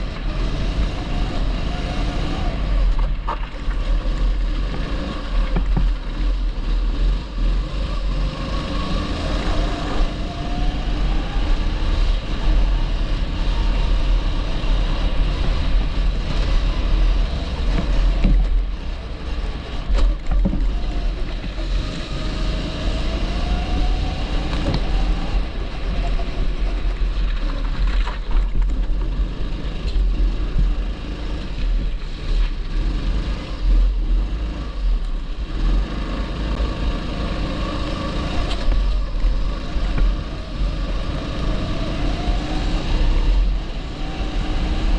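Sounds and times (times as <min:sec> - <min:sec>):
kart engine running: 0:00.0 - 0:44.9.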